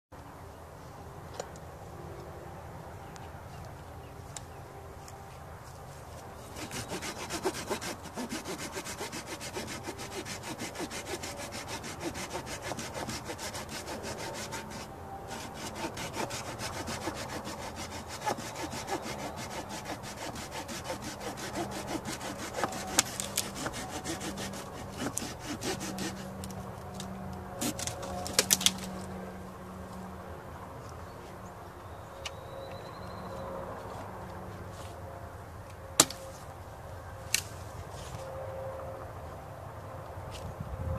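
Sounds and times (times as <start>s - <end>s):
hand saw cutting wood: 6.4s - 26.5s, 27.6s - 28.9s.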